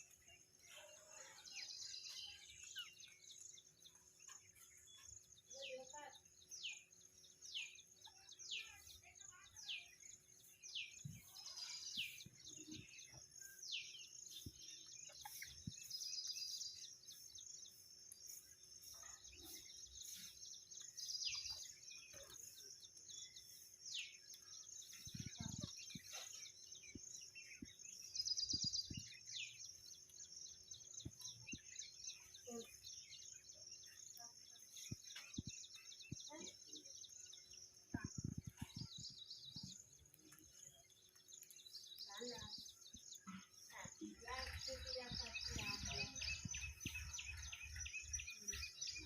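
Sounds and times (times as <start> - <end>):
birds whistling downward notes: 44.2 - 49.0.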